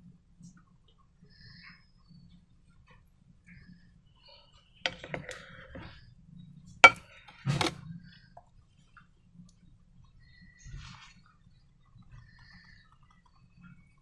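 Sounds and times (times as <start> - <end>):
small objects clicking and tapping: 4.9 - 5.5.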